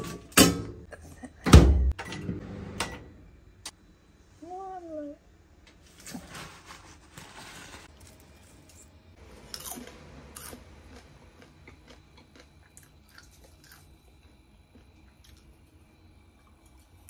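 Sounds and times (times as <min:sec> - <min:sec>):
scraping rustle of tray: 0:05.9 - 0:08.1
crunching and chewing: 0:07.9 - 0:15.7.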